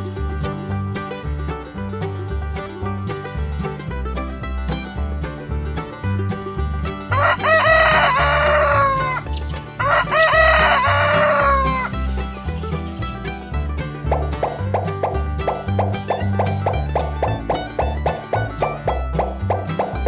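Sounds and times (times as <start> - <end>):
background music with low beat: 0.0 - 10.8, 11.4 - 20.0
crickets chirping: 1.2 - 6.8
rooster crowing: 7.1 - 9.2, 9.8 - 11.9.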